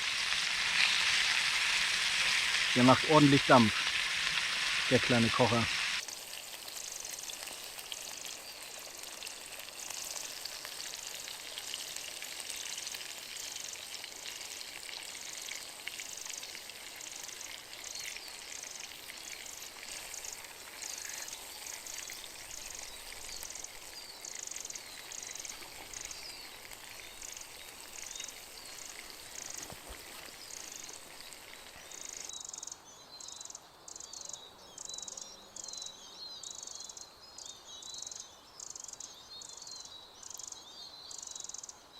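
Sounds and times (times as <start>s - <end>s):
insects chirping: 0.0s - 11.6s, 15.1s - 35.8s
food sizzling in a pan: 0.0s - 32.3s.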